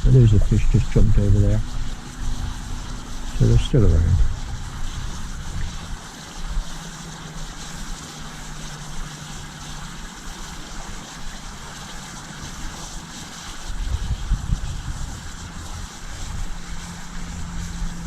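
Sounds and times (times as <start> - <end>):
wind buffeting microphone: 0.0 - 6.0, 13.7 - 18.0.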